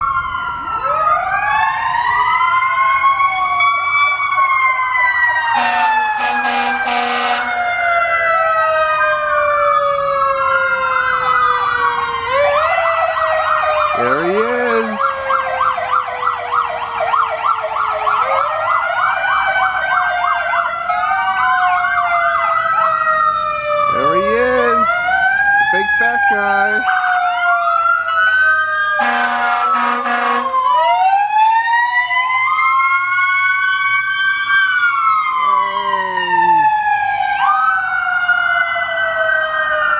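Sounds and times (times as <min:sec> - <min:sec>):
fire truck sirens wailing: 0:00.0 - 0:39.9
horn blasts: 0:05.6 - 0:07.5, 0:29.0 - 0:30.5.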